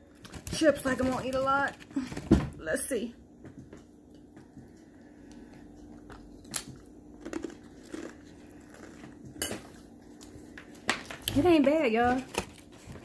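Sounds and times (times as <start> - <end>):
chip crunching and chewing: 5.3 - 9.4.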